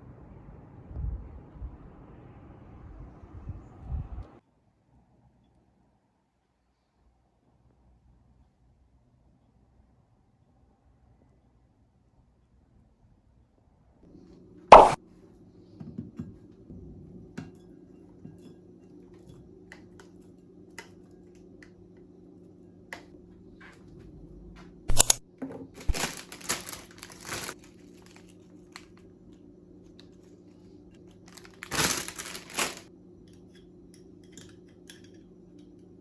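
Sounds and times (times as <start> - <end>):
low steady hum: 0.0 - 4.4, 14.0 - 36.0
crinkling and rustling: 23.0 - 32.9.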